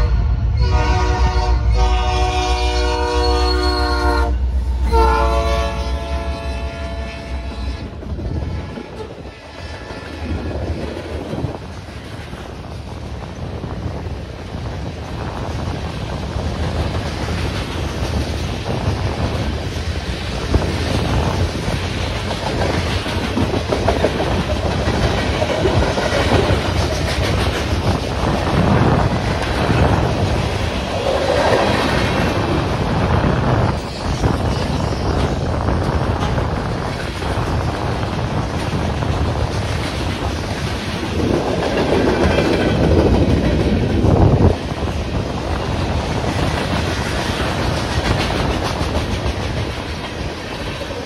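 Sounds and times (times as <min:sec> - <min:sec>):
train wheels rumbling on rails: 0:00.0 - 0:51.0
wheels clacking over rail joints: 0:16.4 - 0:32.9, 0:33.7 - 0:51.0.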